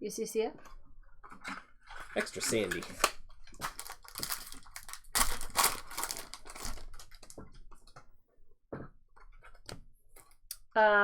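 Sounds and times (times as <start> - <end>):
card packs crinkling: 1.9 - 7.5
cards clicking and tapping: 2.2 - 4.4.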